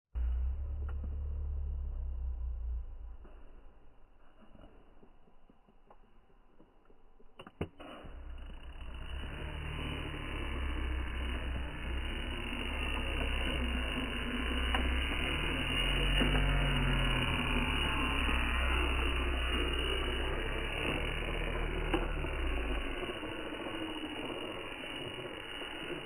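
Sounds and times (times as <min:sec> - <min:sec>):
toy truck motor and tyres rumbling: 0:00.2 - 0:03.7, 0:04.6 - 0:26.0
sharp clicks: 0:05.8 - 0:26.0.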